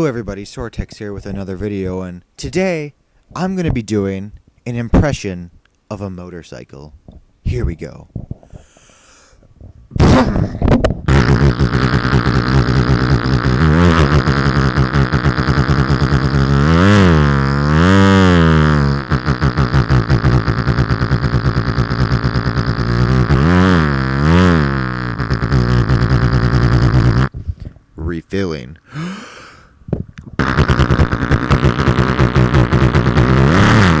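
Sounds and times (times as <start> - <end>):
man imitating dirt bike engine: 10.0 - 27.3, 28.0 - 29.6, 30.4 - 34.0.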